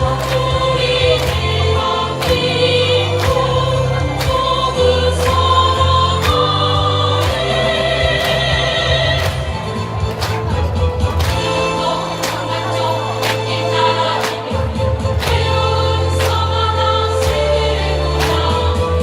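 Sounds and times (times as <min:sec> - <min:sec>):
choir singing held notes: 0:00.0 - 0:09.3.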